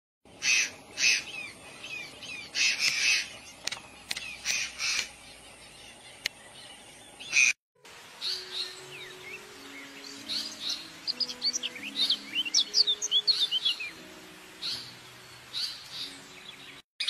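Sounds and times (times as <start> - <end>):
birds calling: 0.3 - 16.8
sharp clicks: 3.6 - 5.1.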